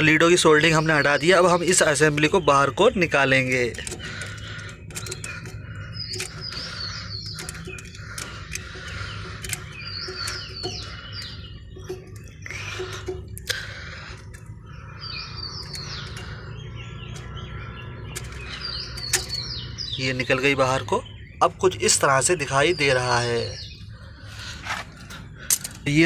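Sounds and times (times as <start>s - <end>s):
birds chirping: 0.0s - 26.0s
steady low hum: 2.9s - 20.0s
light metallic clicks and knocks: 3.4s - 14.6s, 15.6s - 16.5s, 18.0s - 19.5s, 24.7s - 26.0s.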